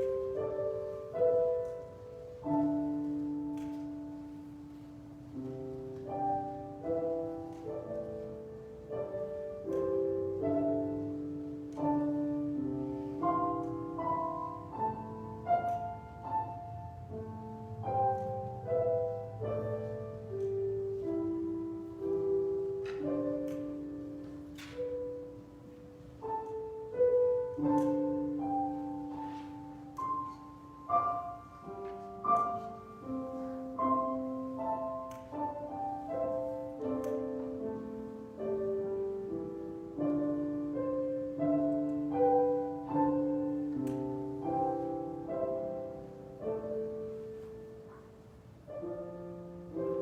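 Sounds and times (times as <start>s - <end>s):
slow solo piano: 0.0s - 50.0s.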